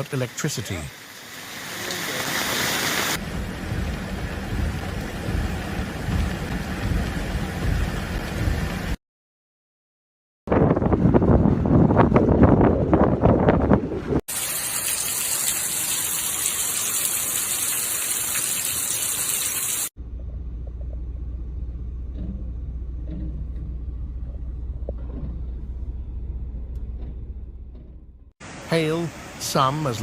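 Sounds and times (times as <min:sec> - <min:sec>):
rushing floodwater: 0:00.0 - 0:03.2, 0:28.4 - 0:30.0
loud rumble: 0:03.2 - 0:09.0, 0:20.0 - 0:28.3
low hum: 0:03.2 - 0:09.0, 0:20.0 - 0:28.3
wind buffeting microphone: 0:10.5 - 0:14.2.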